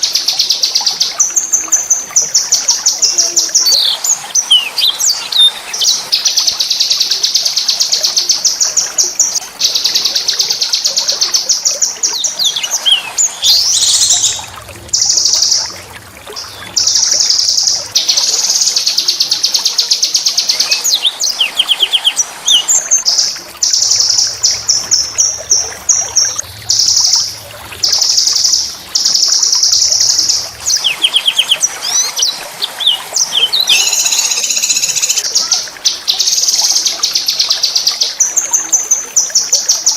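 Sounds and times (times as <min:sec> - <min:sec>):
songbird singing trills: 0:03.0 - 0:06.0, 0:09.6 - 0:15.7, 0:16.4 - 0:35.3.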